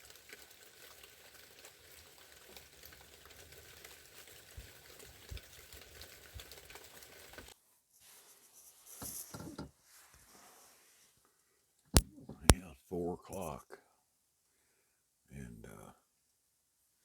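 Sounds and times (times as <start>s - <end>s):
faint light rain pattering: 0.0s - 8.3s.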